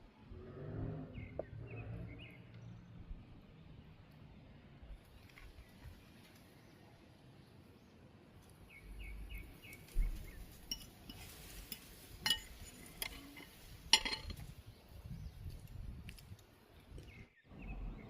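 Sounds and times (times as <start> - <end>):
tableware clinking: 10.6 - 14.4.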